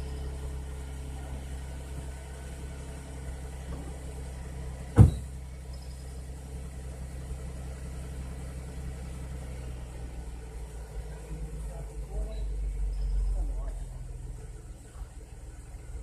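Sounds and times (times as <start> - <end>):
car engine idling: 0.0 - 16.0
sharp thump: 5.0 - 5.3.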